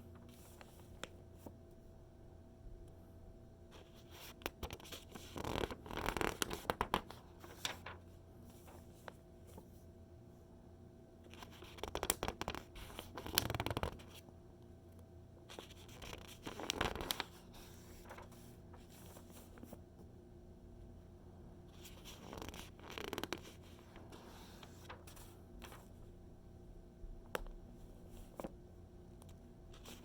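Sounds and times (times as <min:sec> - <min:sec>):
magazine pages turning: 0:04.3 - 0:09.7, 0:15.5 - 0:19.8, 0:21.8 - 0:26.0.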